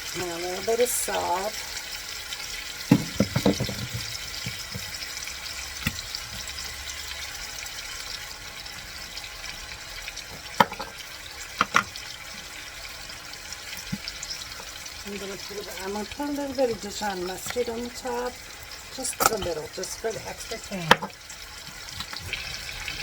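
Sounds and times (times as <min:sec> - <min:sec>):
chicken sizzling in a pan: 0:00.0 - 0:23.0
kitchen utensils knocking: 0:02.9 - 0:04.9, 0:10.6 - 0:11.0.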